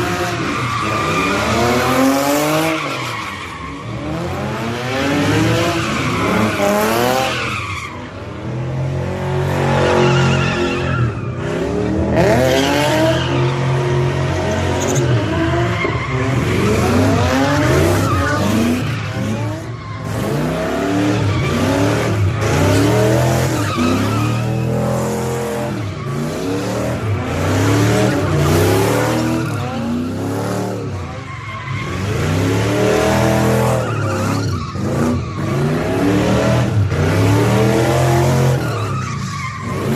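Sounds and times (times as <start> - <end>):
tires squealing and skidding: 0.0 - 39.9
car engine revving: 11.4 - 39.9.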